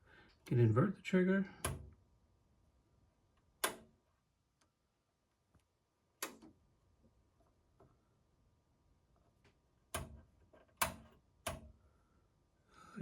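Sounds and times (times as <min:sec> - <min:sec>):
oscilloscope switches clicking: 0:03.6 - 0:03.9.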